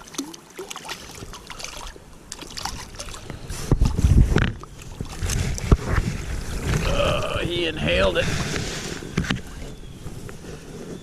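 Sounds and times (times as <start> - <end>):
wind buffeting microphone: 2.6 - 11.0.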